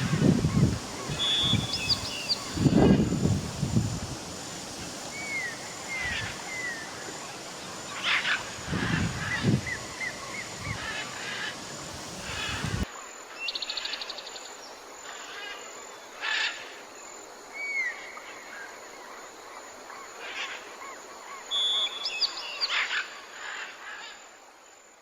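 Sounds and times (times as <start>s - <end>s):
bird trilling: 0.0s - 2.7s
harsh bird calls: 0.0s - 2.9s
bird whistle: 1.1s - 2.5s.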